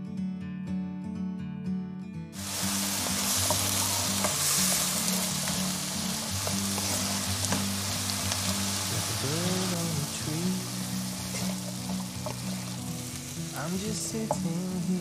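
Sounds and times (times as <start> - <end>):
spatula scraping a wok: 2.4 - 9.0, 10.8 - 13.4
vegetables sizzling in hot oil: 2.4 - 15.0.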